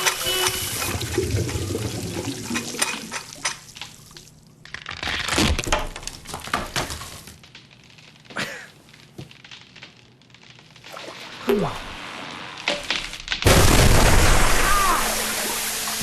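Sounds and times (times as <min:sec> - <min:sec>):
water gushing and splashing: 0:00.3 - 0:04.1, 0:10.8 - 0:12.6, 0:13.6 - 0:16.0
clattering knocks and breaking: 0:04.7 - 0:08.3, 0:12.6 - 0:14.3
loud crash: 0:11.4 - 0:15.8.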